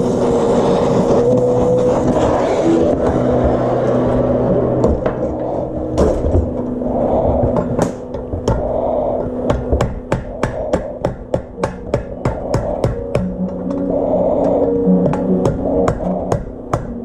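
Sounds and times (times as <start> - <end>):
rushing noise and hum: 0.0 - 17.0
hammer striking metal: 7.4 - 17.0.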